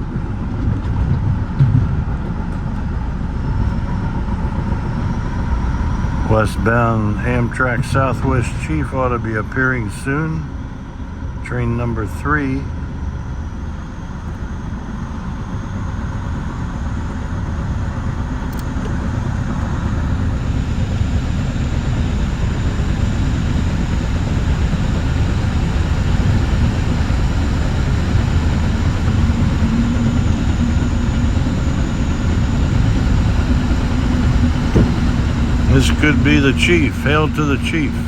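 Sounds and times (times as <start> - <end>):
train car rumbling on track: 0.0 - 38.0.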